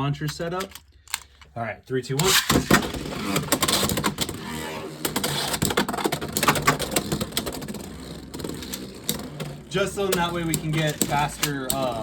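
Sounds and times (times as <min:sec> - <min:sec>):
tops clattering and clicking: 0:00.2 - 0:01.5, 0:05.0 - 0:12.0
spinning tops whirring: 0:02.2 - 0:12.0.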